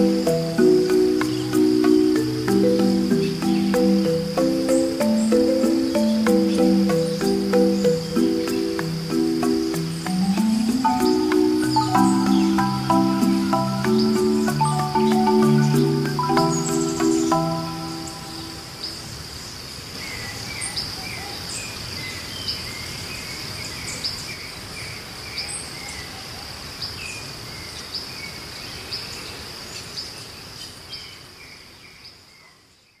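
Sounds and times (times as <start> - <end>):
insect drone: 0.0 - 21.8.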